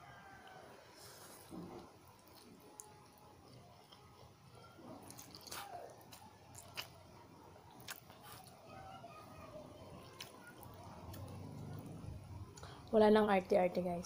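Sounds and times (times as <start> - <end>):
person chewing noodles: 1.2 - 7.0, 7.7 - 8.6, 10.0 - 12.8.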